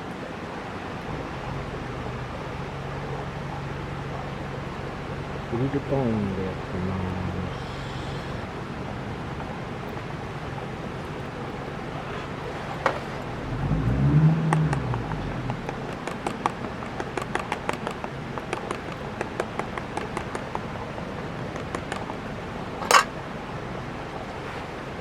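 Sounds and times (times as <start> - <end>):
campfire crackling and popping: 14.4 - 23.2.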